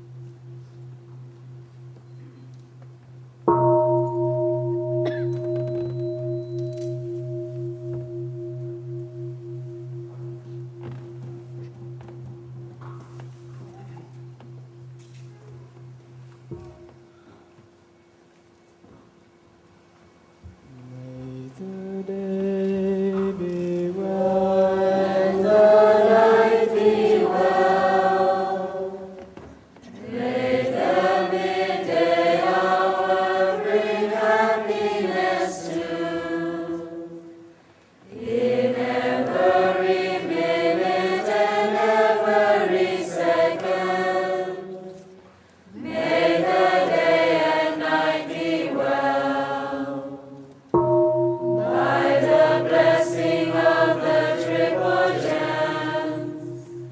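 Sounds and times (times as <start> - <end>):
group chanting: 24.0 - 29.0, 30.0 - 37.2, 38.1 - 45.0, 45.7 - 50.2, 51.6 - 56.6.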